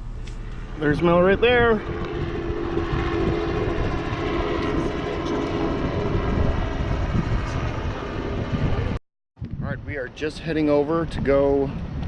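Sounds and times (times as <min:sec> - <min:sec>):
helicopter rotor drone: 0:00.0 - 0:09.0.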